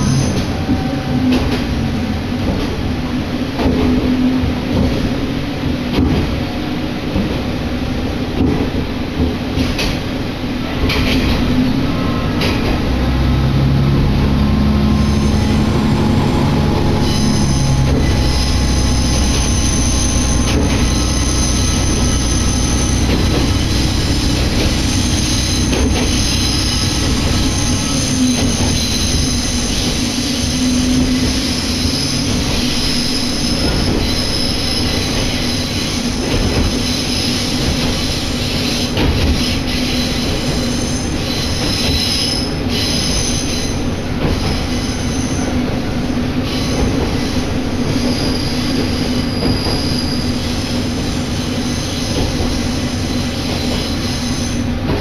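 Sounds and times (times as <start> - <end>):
wheels rumbling on rail: 0.0 - 55.0
diesel engine droning: 11.5 - 31.3
wheel flange squeal: 14.5 - 54.7.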